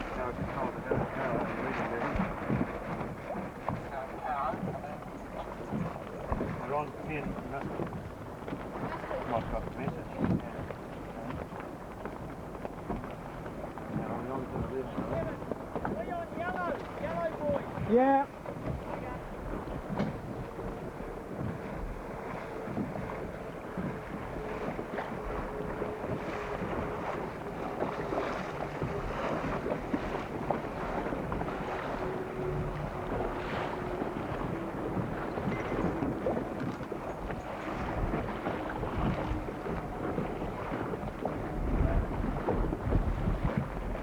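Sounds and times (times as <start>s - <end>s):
water around a boat: 0.0s - 44.0s
wind buffeting microphone: 0.0s - 44.0s.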